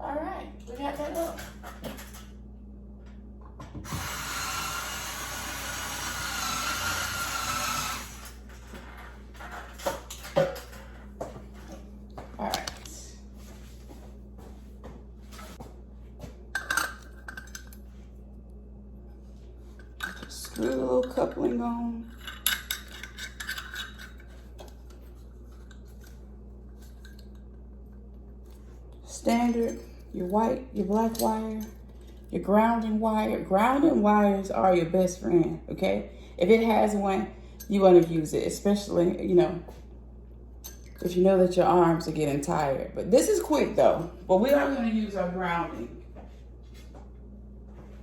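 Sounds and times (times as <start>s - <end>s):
low steady hum: 0.0s - 48.0s
metal parts clinking and scraping: 22.1s - 24.4s.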